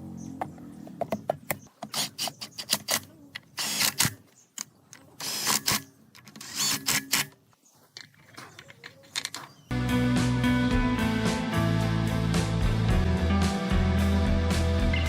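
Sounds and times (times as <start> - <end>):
sharp clicks and knocks: 0.4 - 9.7.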